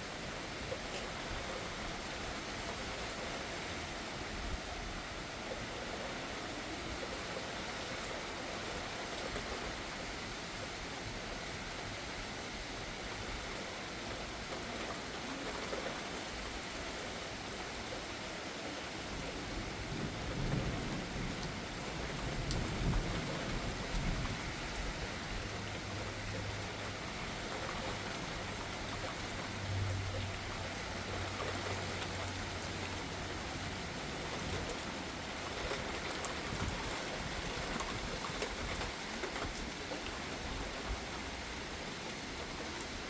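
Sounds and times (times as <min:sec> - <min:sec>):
heavy rain falling: 0:00.0 - 0:43.0
thunder rumbling low: 0:19.1 - 0:25.6.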